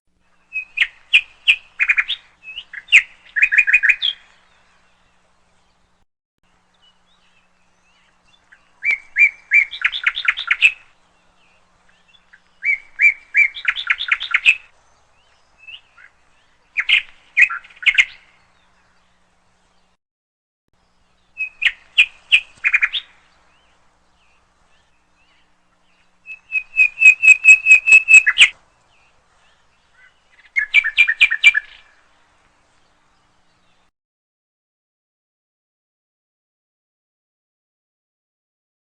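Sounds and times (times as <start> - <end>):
bird chirping: 0.2 - 20.0, 20.8 - 33.9.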